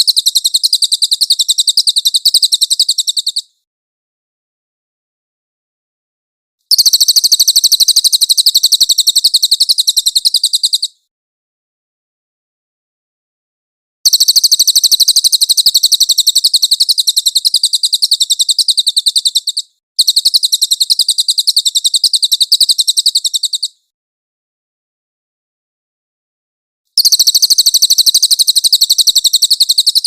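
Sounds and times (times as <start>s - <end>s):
bird trilling: 0.0s - 3.5s, 6.7s - 10.9s, 14.1s - 23.8s, 27.0s - 30.0s.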